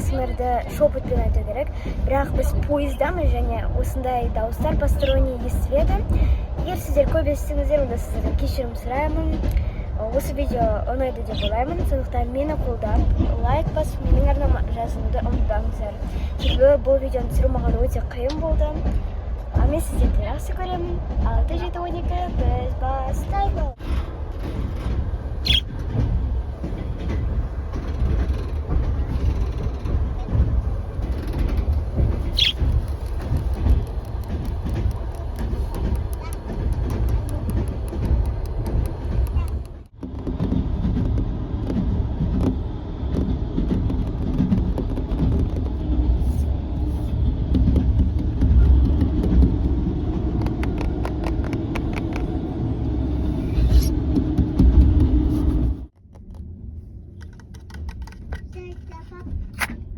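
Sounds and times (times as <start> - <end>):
train rumbling: 0.0 - 59.9
sharp clicks and taps: 32.4 - 39.9, 50.3 - 52.3.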